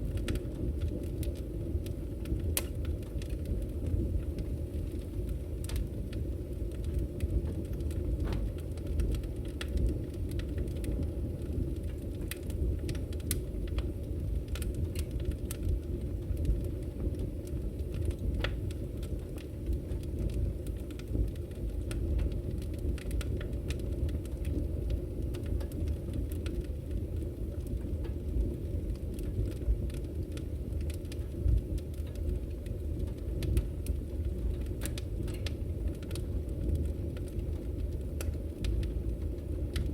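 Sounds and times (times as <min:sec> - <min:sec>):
firewood crackling and popping: 0:00.0 - 0:39.9
low rumble of fire: 0:00.0 - 0:39.9.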